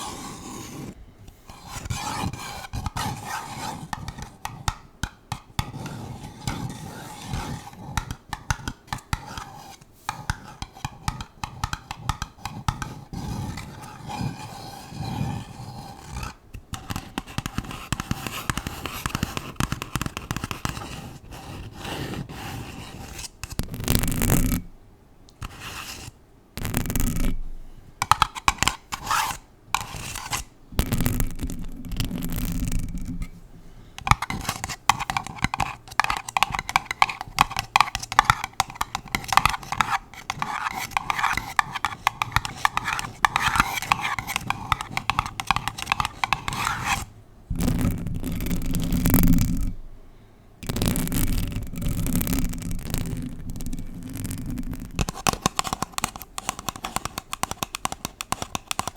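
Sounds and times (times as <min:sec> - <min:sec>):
nails scratching microphone: 0:00.0 - 0:04.4, 0:25.4 - 0:27.4, 0:28.0 - 0:49.8, 0:50.6 - 0:58.9
nails scratching paper cup: 0:00.0 - 0:24.7, 0:25.4 - 0:27.4, 0:28.0 - 0:33.4, 0:34.0 - 0:49.8, 0:50.6 - 0:58.9.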